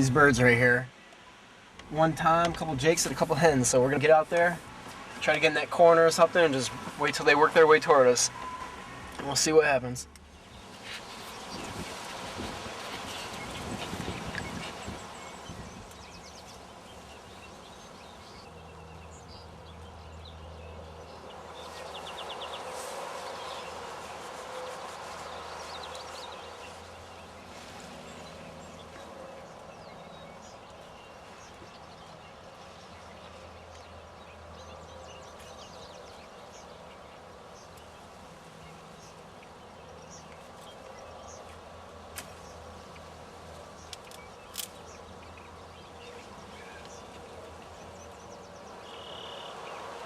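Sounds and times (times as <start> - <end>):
bird chirps and trill: 43.8 - 49.9.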